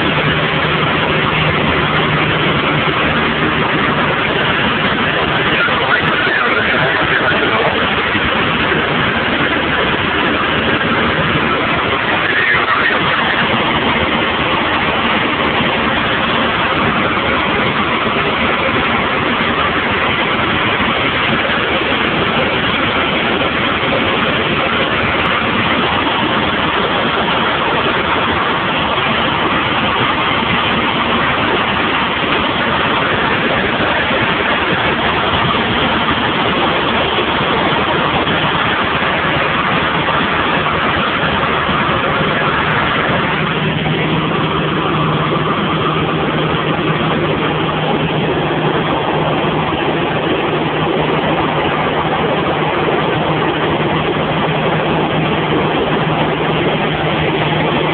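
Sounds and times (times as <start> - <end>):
airplane engine and propeller drone: 0.0 - 57.9
rushing air: 0.0 - 57.9.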